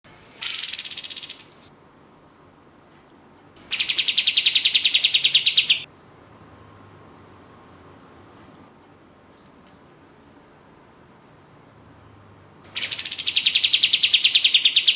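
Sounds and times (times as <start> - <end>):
bird calling in rattling trills: 0.4 - 1.6, 3.7 - 5.9, 12.7 - 14.9.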